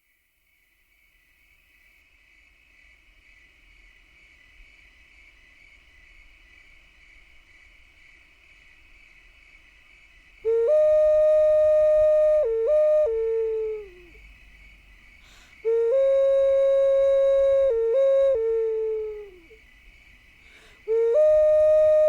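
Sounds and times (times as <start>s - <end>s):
whistle-like tone: 10.5s - 14.1s, 15.7s - 19.6s, 20.9s - 22.0s.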